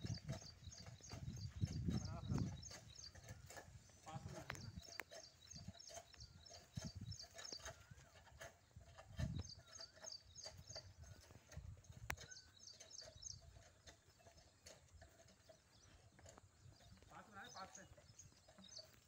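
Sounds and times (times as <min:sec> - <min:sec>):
faint bird chirps: 0:09.2 - 0:19.0.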